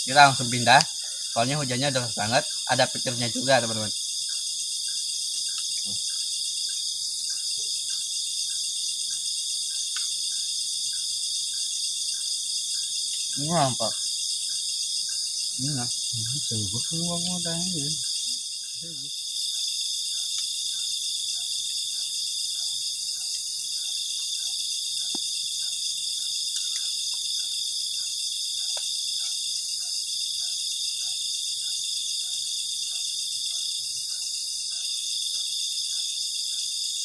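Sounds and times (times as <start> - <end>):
crickets trilling: 0.0 - 37.0
faint repeating call: 15.6 - 18.0.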